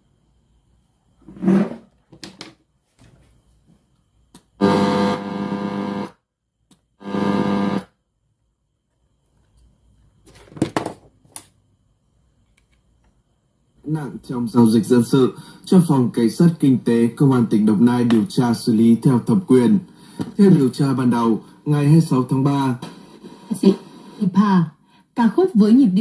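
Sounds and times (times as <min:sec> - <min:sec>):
radio being tuned: 0:04.6 - 0:06.1, 0:07.0 - 0:07.8, 0:22.8 - 0:24.4.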